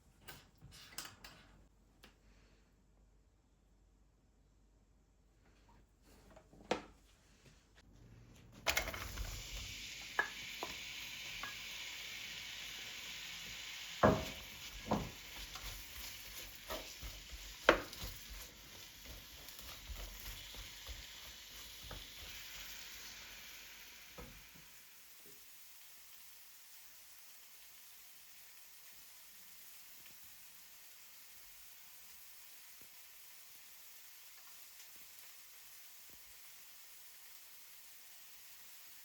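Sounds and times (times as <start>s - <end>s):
food sizzling in frying pan: 8.6s - 39.0s.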